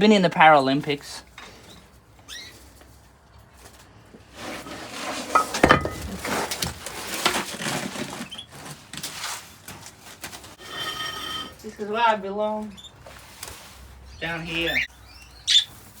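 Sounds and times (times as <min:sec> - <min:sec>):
hard objects clattering and clinking: 0:04.6 - 0:08.2.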